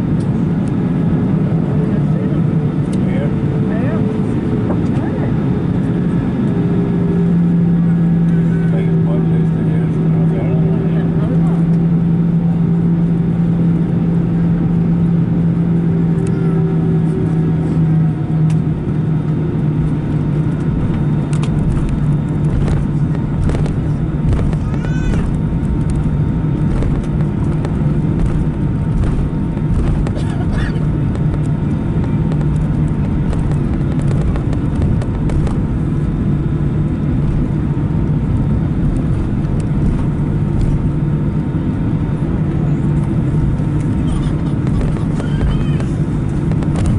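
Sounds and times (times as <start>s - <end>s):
airplane cabin rumble: 0.0s - 46.9s
strong steady hum: 0.0s - 46.9s.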